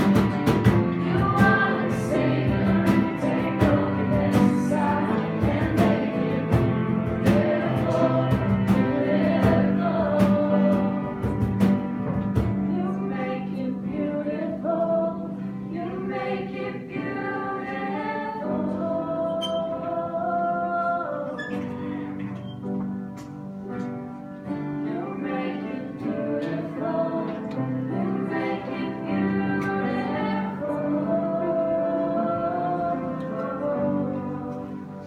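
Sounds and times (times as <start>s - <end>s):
percussion hits: 0.0s - 12.7s
voices singing together: 0.0s - 22.0s, 24.7s - 35.0s
instrumental backing: 0.0s - 35.0s.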